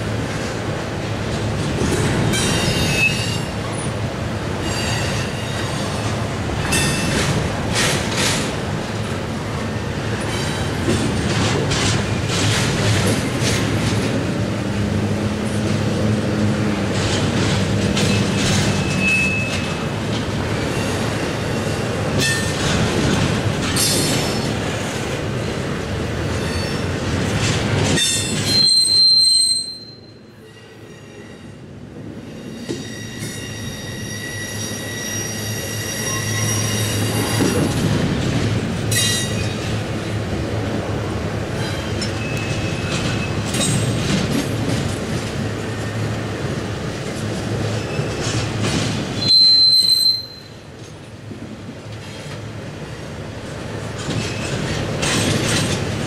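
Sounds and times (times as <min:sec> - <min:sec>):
train wheels rumbling on rail: 0:00.0 - 0:56.0
wheels clicking over rail joints: 0:04.6 - 0:09.2, 0:10.0 - 0:25.6, 0:26.2 - 0:29.4, 0:41.5 - 0:50.1, 0:53.3 - 0:56.0
wheel squeal: 0:18.0 - 0:19.7, 0:28.1 - 0:30.1, 0:32.5 - 0:37.6, 0:49.2 - 0:50.5.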